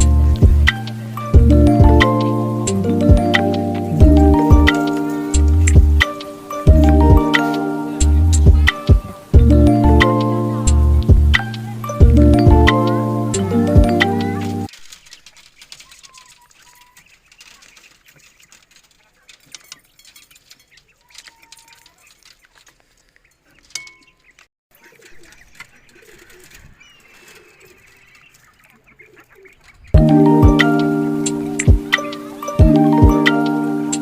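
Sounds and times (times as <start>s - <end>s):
low bird chatter: 0.0s - 9.4s, 10.0s - 34.0s
background music: 0.0s - 14.7s, 30.0s - 34.0s
faint bird calls: 12.6s - 29.9s.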